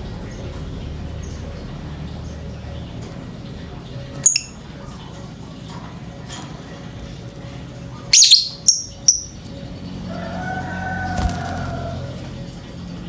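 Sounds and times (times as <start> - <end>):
bird chirping shrilly: 4.2 - 4.6, 8.1 - 9.4.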